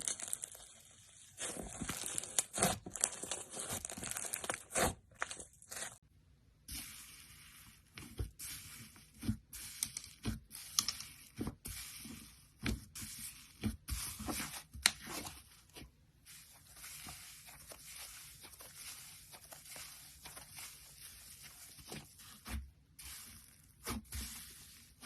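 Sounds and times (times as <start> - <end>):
slime crackling and popping: 0.0 - 5.9.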